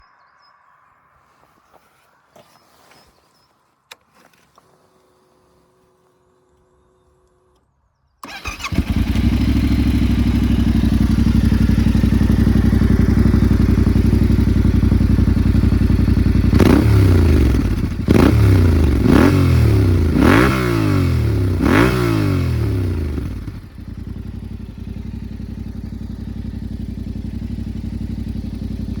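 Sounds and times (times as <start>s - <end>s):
motorcycle engine idling and revving: 8.2s - 29.0s.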